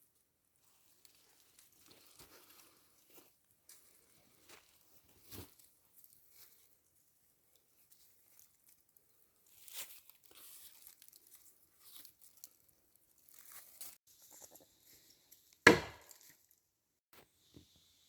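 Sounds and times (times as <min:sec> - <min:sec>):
faint rustling and crackling: 0:00.0 - 0:15.5
sharp knock: 0:15.7 - 0:16.0.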